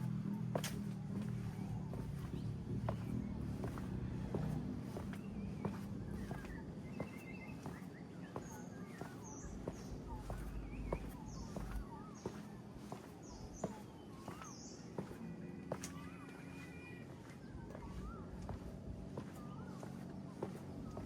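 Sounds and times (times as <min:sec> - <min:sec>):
low background rumble: 0:00.0 - 0:08.0
footsteps walking: 0:00.0 - 0:21.0
birds chirping and whistling: 0:01.7 - 0:15.8.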